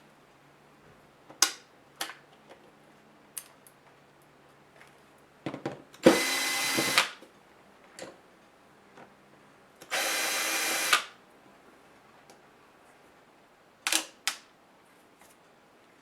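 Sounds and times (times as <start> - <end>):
electric screwdriver running: 6.0 - 7.1, 9.9 - 11.1.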